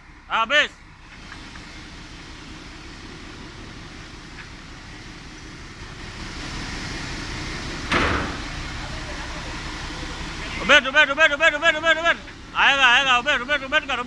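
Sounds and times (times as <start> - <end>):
heavy vehicle engine running: 0.0 - 14.0
loud burst of noise: 7.8 - 10.4.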